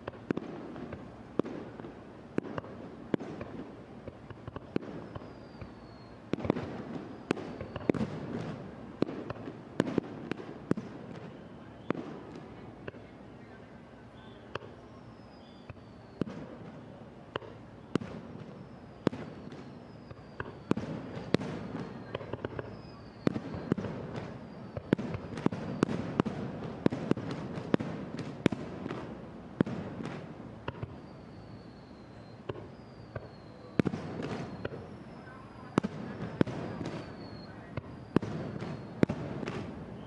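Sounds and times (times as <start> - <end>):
fireworks bursting with sharp bangs: 0.0 - 40.0
faint falling whistles: 4.5 - 8.1, 11.1 - 12.3, 12.9 - 17.0, 17.7 - 26.2, 30.7 - 40.0.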